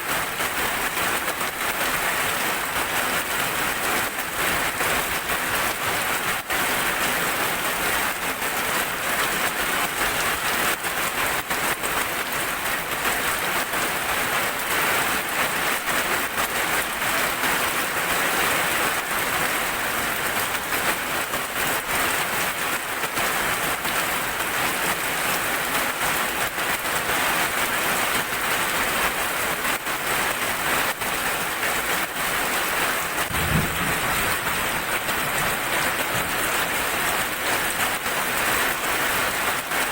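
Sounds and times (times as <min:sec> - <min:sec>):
heavy rain: 0:00.0 - 0:39.9
brief low thump: 0:33.3 - 0:35.4.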